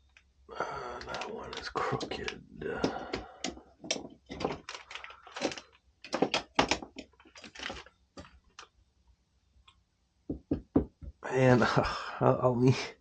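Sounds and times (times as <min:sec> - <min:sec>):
hand tools and metal parts clattering: 0:02.9 - 0:07.9.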